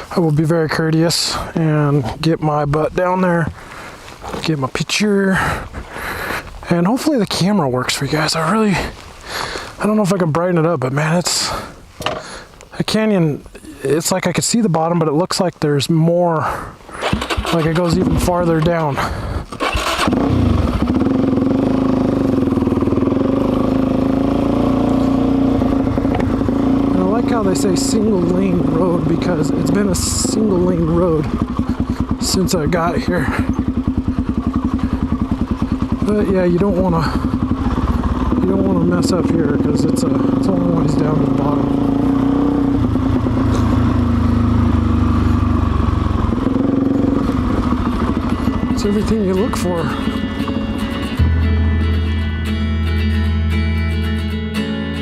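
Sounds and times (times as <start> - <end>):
motorcycle engine running: 16.9 - 53.5.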